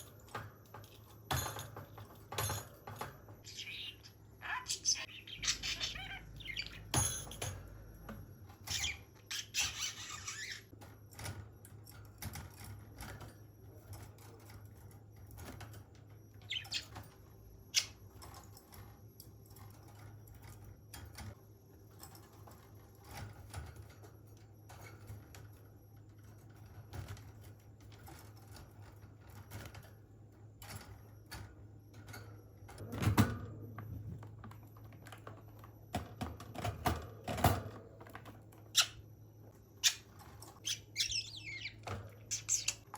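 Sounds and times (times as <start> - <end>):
budgerigar chirping and squawking: 3.5 - 6.9, 8.7 - 10.7, 39.8 - 42.9.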